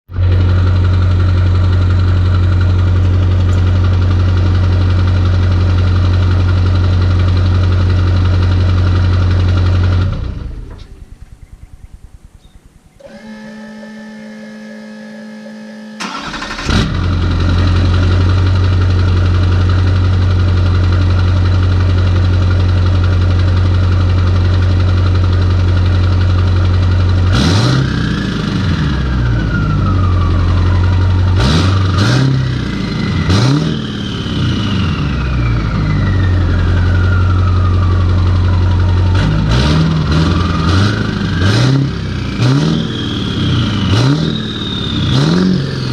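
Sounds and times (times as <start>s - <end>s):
diesel engine idling and revving: 0.1s - 45.9s
turbo whistle: 12.4s - 16.5s, 40.5s - 45.8s.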